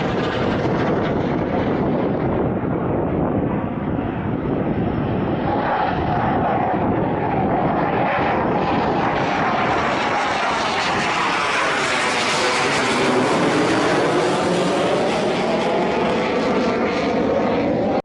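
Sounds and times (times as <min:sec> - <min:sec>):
jet passing: 0:00.0 - 0:18.0
steady whine: 0:00.0 - 0:18.0.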